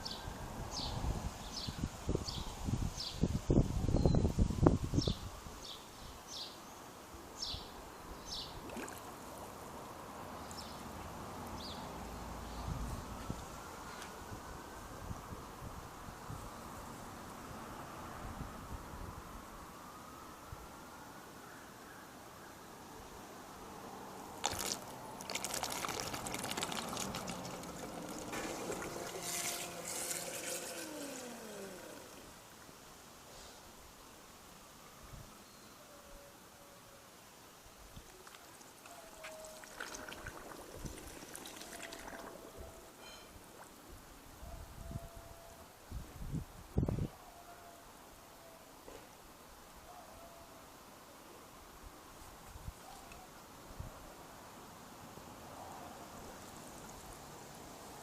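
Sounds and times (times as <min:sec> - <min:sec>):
faint outdoor hiss: 0:00.0 - 0:58.0
water splashing and pouring: 0:08.6 - 0:09.4, 0:24.4 - 0:32.4, 0:38.1 - 0:42.7
steady tones sliding down in pitch: 0:27.2 - 0:32.4.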